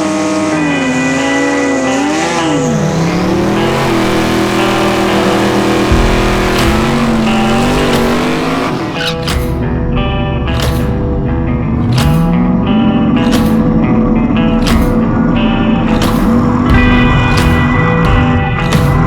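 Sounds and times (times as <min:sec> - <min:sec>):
race car engine revving: 0:00.0 - 0:09.6.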